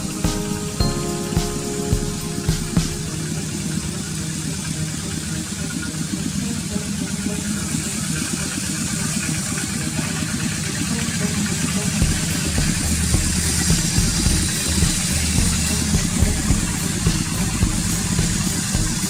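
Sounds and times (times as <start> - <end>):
engine running with low pulsing: 3.3 - 19.0.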